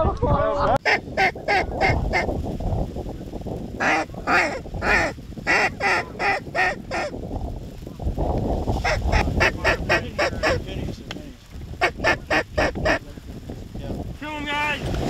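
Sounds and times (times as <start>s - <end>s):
goose honking: 3.8s - 7.1s, 8.8s - 10.7s, 11.8s - 13.0s.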